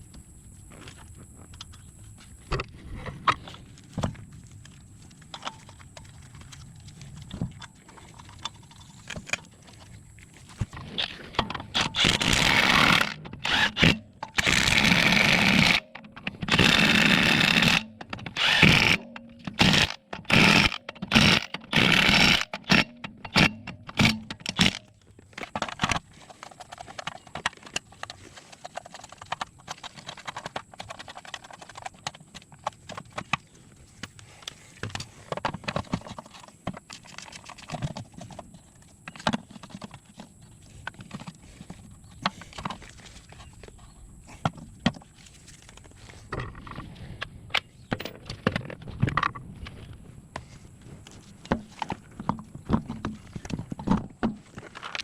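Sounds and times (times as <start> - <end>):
hand tools clicking and knocking: 5.2 - 49.6
impact wrench bursts: 11.7 - 15.8, 16.4 - 24.8.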